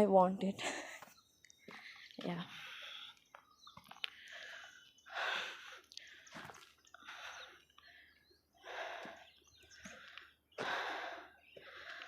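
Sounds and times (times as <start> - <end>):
person breathing heavily: 4.0 - 12.0.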